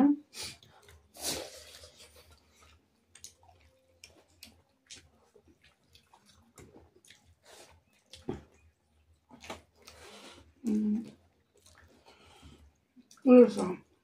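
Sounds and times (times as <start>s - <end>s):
soft chewing and mouth clicks: 0.3s - 14.0s.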